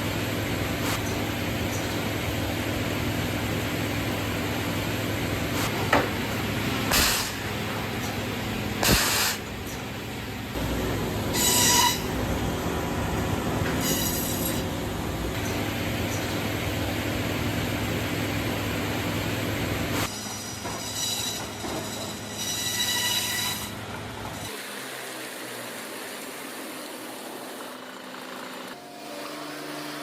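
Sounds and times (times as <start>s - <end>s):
machinery humming: 0.0s - 20.6s.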